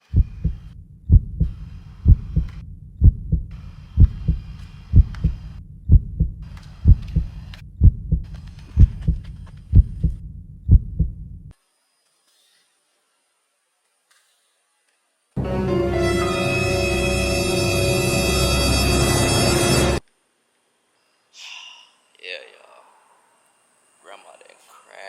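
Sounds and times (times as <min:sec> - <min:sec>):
heartbeat thumps: 0:00.0 - 0:11.5.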